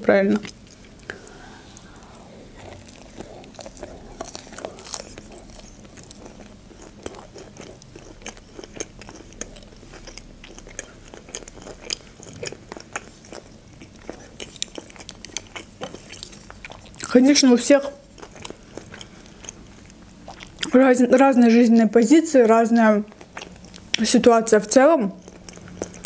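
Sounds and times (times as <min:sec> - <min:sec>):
wet mouth clicks: 0:00.4 - 0:09.6
crunchy chewing: 0:00.4 - 0:20.8, 0:23.0 - 0:24.0, 0:25.1 - 0:26.0.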